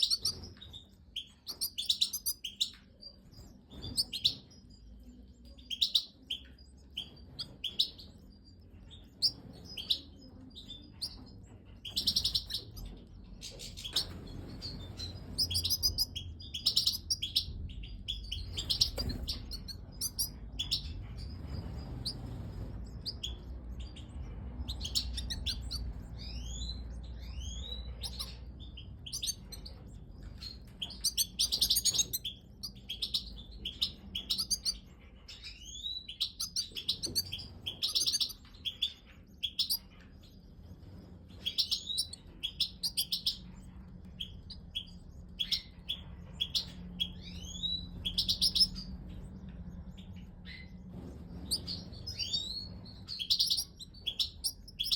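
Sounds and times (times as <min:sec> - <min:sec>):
finches chirping: 0:00.0 - 0:54.9
low rumble: 0:14.1 - 0:31.0.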